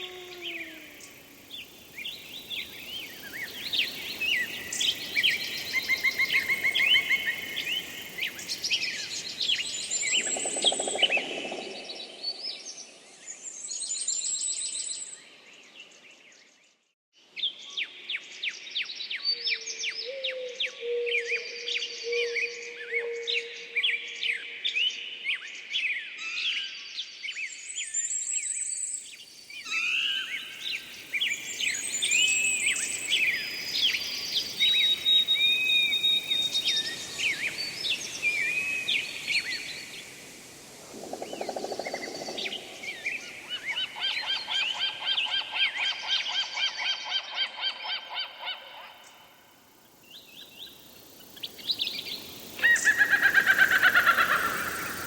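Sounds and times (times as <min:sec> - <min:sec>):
birds singing and calling: 0:00.0 - 0:12.8, 0:27.3 - 0:49.3, 0:50.0 - 0:55.0
loud repeated bird call falling: 0:52.6 - 0:55.0.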